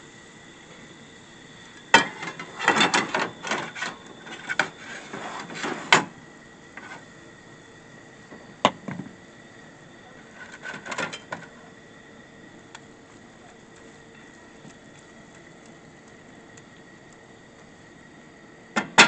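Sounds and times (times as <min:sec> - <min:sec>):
rustling and scraping: 0:02.2 - 0:06.1, 0:10.3 - 0:11.5.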